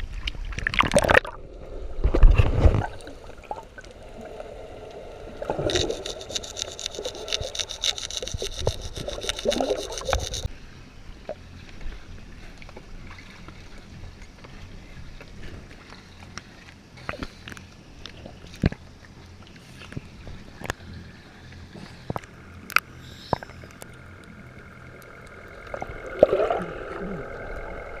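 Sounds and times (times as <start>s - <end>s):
water splashing: 0.5s - 10.5s, 21.9s - 28.0s
rapid even scraping: 5.4s - 10.5s.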